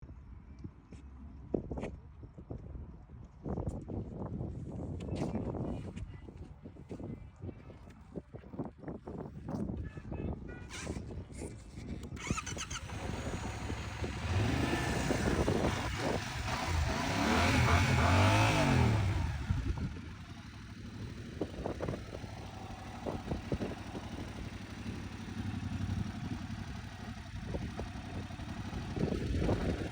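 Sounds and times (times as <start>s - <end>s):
engine idling: 12.2s - 29.9s
motorcycle engine revving: 12.2s - 29.9s.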